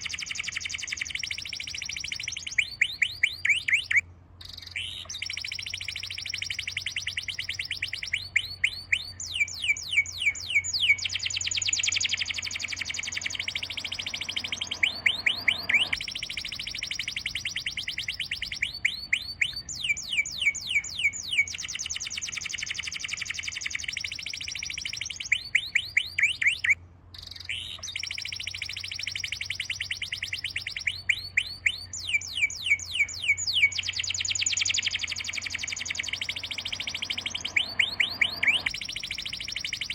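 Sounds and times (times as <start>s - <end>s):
songbird trilling: 0.0s - 39.9s
low steady hum: 3.9s - 21.3s, 32.8s - 39.9s.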